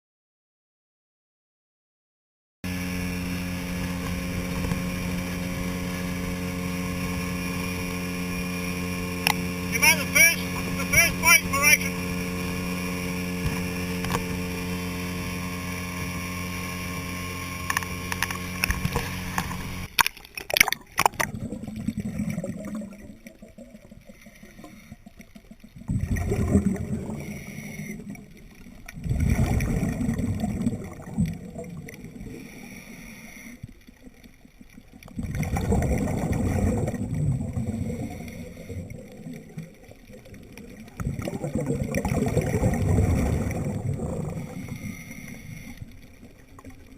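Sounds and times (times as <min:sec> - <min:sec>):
boat engine running: 0:02.7 - 0:22.4, 0:24.1 - 0:46.9
scuba exhalation bubbles underwater: 0:18.5 - 0:32.6, 0:34.8 - 0:46.9.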